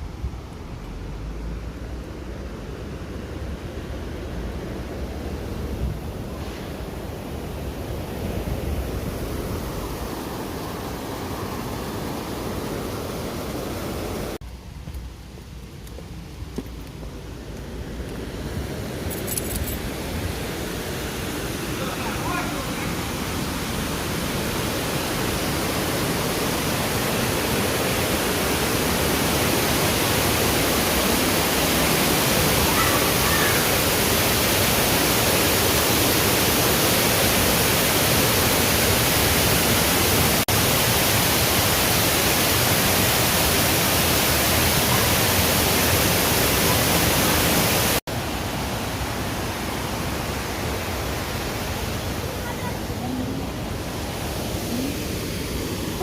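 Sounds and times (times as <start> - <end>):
waterfall rushing: 1.0 - 14.4, 19.7 - 56.0.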